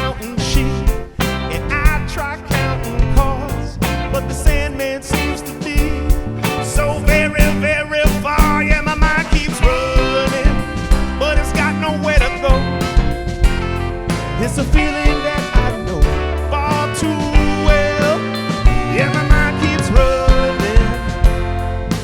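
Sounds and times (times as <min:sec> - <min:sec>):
bass: 0:00.0 - 0:22.0
drum kit beat: 0:00.0 - 0:22.0
wavering melody with vibrato: 0:09.8 - 0:22.0.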